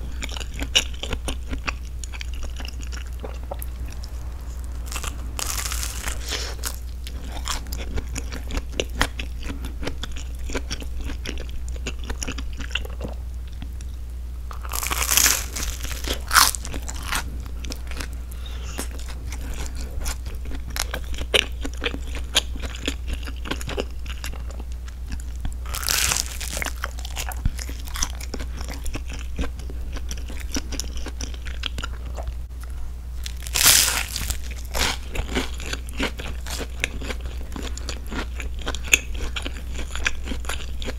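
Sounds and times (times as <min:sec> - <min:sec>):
toasted bread crunching: 0:14.5 - 0:18.1, 0:25.2 - 0:31.4, 0:33.2 - 0:40.9.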